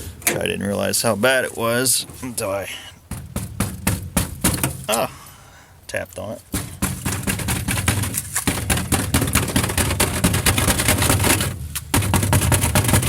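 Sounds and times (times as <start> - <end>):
rattling and knocking on rusted metal: 1.7 - 5.4, 6.4 - 13.0.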